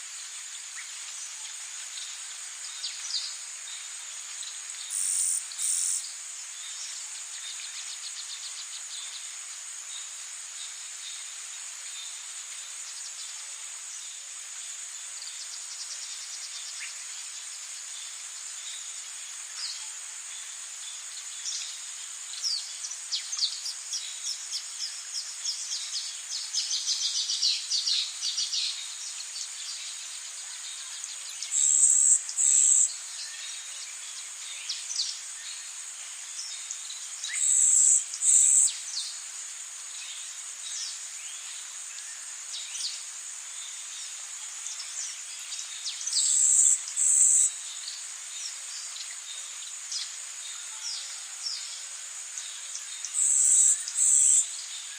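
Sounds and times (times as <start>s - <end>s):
high-pitched insect drone: 4.9s - 6.1s, 31.5s - 33.7s, 37.2s - 39.1s, 46.2s - 47.6s, 53.1s - 54.8s
loud insect buzz bursts: 4.9s - 6.1s, 37.3s - 38.7s, 46.2s - 47.6s.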